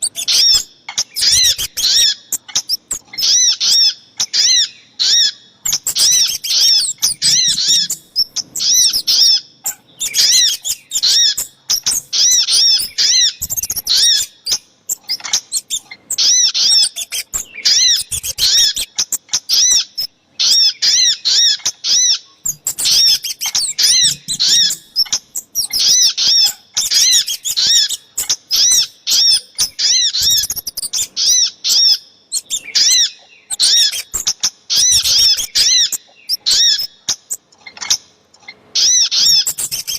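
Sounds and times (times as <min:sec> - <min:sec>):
high chip notes of birds: 0:00.0 - 0:37.6.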